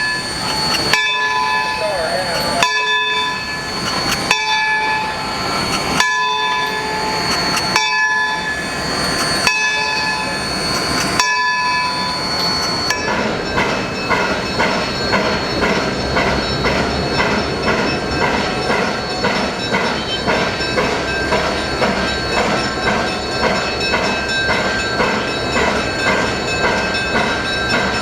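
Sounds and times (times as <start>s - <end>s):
locomotive bells ringing: 0.0s - 28.0s.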